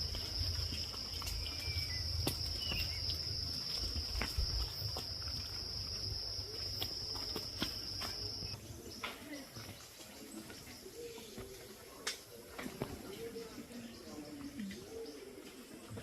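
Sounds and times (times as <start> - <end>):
insects droning: 0.0 - 9.9.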